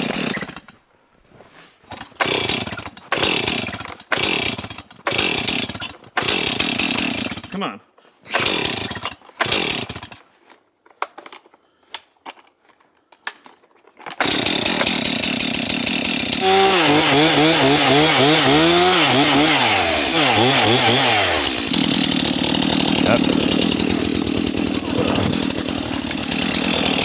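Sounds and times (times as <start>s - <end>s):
chainsaw engine revving: 0.0s - 0.7s, 1.9s - 7.6s, 8.3s - 10.2s, 14.2s - 27.0s
chainsaw pull-cord: 0.0s - 0.8s, 1.9s - 7.6s, 8.3s - 27.0s.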